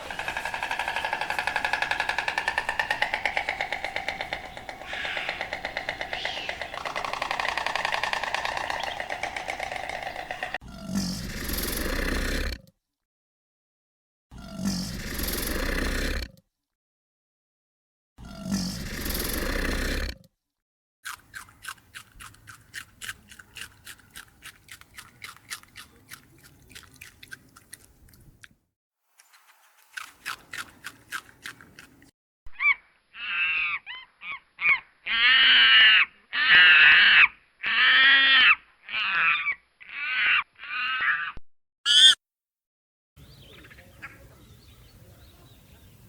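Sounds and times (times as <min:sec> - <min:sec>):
bird calling loudly: 0:00.0 - 0:10.6, 0:32.5 - 0:42.2.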